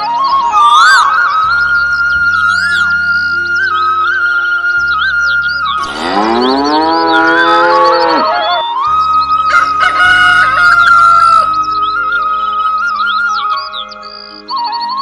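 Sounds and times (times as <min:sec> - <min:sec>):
flute-like background music: 0:00.0 - 0:15.0
cow mooing: 0:05.8 - 0:08.6.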